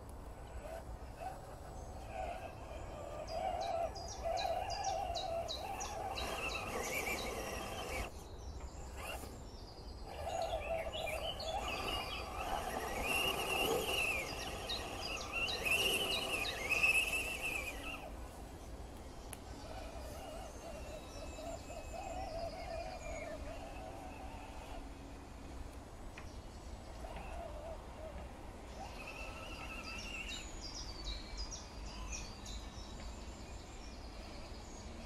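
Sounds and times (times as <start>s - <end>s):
steady low hum: 0.0s - 35.0s
birds chirping: 0.4s - 24.8s, 26.1s - 35.0s
rising and falling whines: 10.1s - 18.4s.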